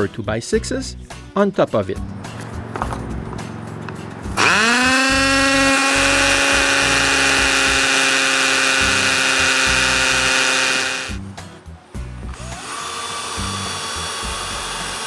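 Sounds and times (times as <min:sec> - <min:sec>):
electric drill motor whining: 0:04.4 - 0:11.2, 0:12.3 - 0:15.0.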